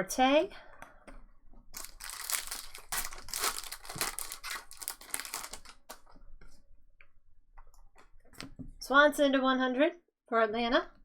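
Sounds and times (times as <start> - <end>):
foil wrapper crinkling: 1.7 - 6.1.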